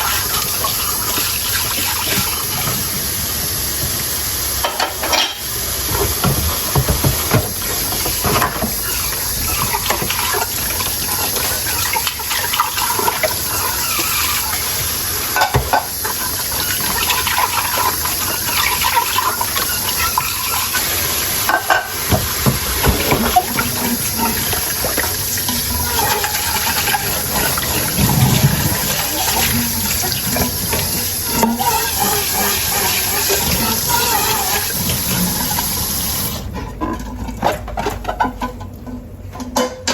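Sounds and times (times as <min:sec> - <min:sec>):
tap water running into sink: 0:00.0 - 0:36.5
dishes clinking and knocking: 0:04.6 - 0:13.4, 0:15.3 - 0:16.0, 0:21.4 - 0:34.7, 0:36.6 - 0:39.9.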